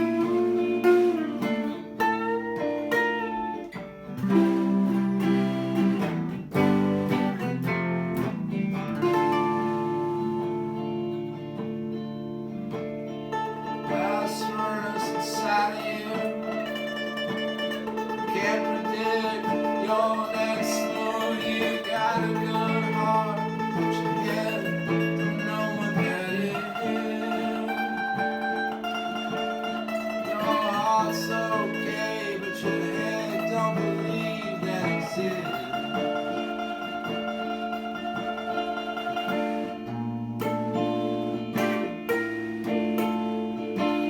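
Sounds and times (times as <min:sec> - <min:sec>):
plucked guitar: 0:00.0 - 0:44.0
person singing: 0:13.4 - 0:39.9, 0:41.6 - 0:44.0.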